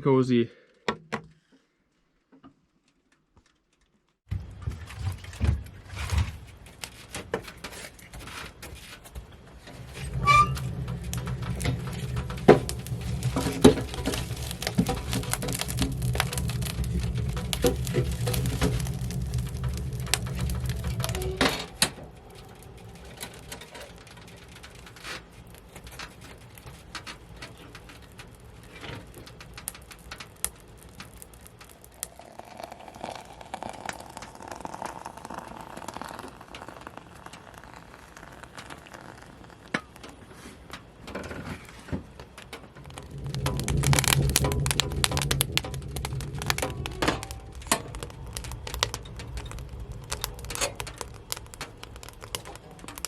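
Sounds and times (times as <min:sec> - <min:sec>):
wood fire crackling: 0:02.8 - 0:53.0
low hum: 0:09.6 - 0:32.2, 0:42.6 - 0:53.0.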